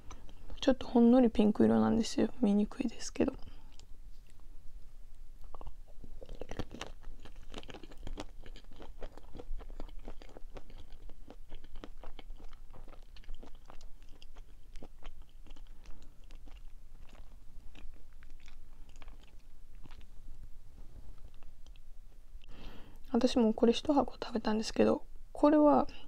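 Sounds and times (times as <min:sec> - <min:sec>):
crunchy chewing of a sweet: 0:05.4 - 0:20.2, 0:21.1 - 0:22.5.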